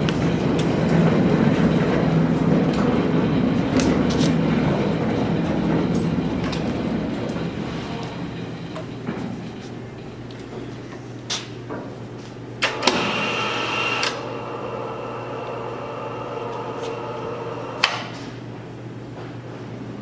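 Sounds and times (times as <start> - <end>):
lifting machinery humming: 0.0 - 20.0
high hydraulic whine: 12.6 - 18.3.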